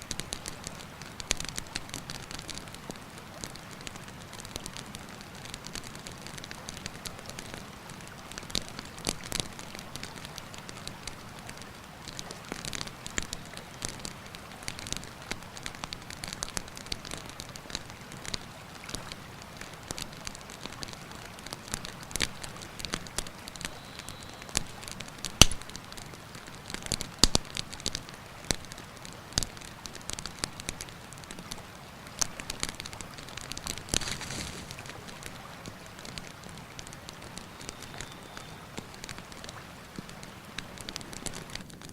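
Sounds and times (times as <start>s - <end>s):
campfire crackling and popping: 0.0s - 41.9s
river rushing: 27.5s - 41.6s.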